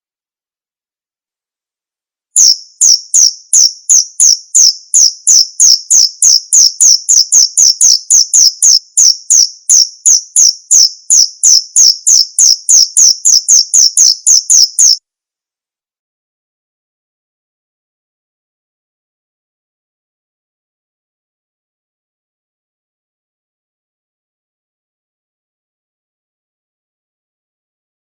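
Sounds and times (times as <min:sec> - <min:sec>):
cricket chirping: 0:02.4 - 0:15.0.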